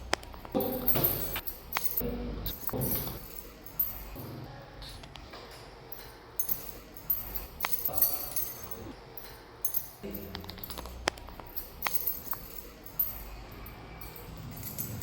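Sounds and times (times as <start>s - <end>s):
metallic jingling and clinking: 0.0s - 4.5s, 5.5s - 15.0s.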